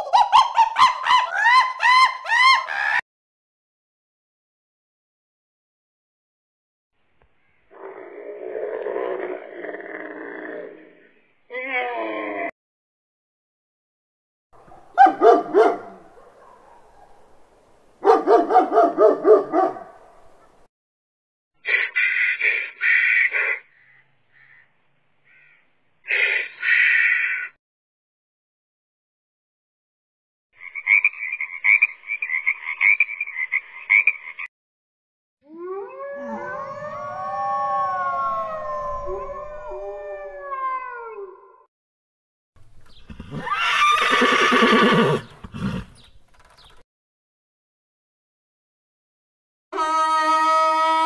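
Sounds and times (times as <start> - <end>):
dog barking: 14.6 - 17.3, 18.0 - 20.2
animal harsh rasping call: 21.6 - 24.6, 25.3 - 27.5, 42.9 - 46.0
wolves howling: 35.5 - 41.6.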